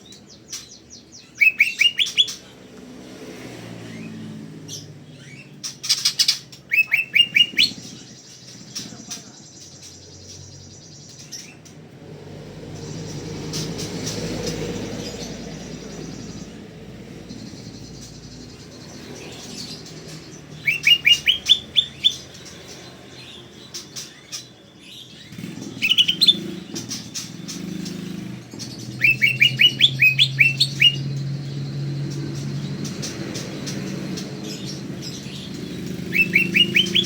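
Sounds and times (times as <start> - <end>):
bird singing whistled notes: 0.0 - 2.4, 5.2 - 11.5, 17.4 - 22.5, 23.2 - 28.2, 28.9 - 34.0, 34.6 - 37.0.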